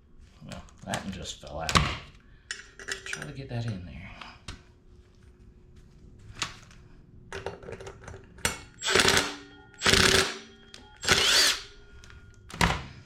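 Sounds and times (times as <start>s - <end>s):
cordless impact tool hammering: 8.8s - 11.7s.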